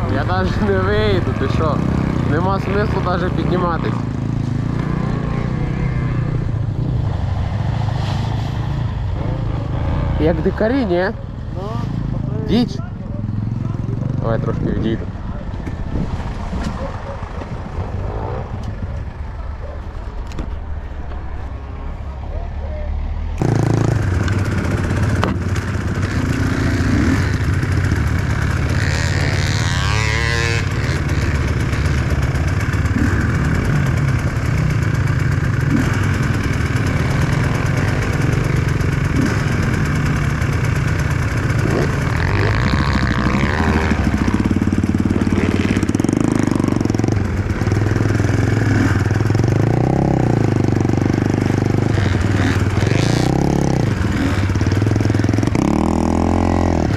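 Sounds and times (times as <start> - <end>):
motorcycle engine revving: 0.0 - 21.0, 23.1 - 56.9.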